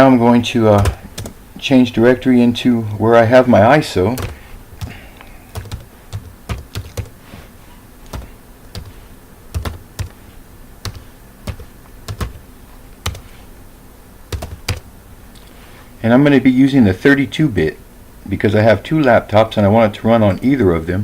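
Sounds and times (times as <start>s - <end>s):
keyboard typing: 0.7s - 1.4s, 4.1s - 7.2s, 8.0s - 10.2s, 10.8s - 12.4s, 13.0s - 13.4s, 14.3s - 14.9s.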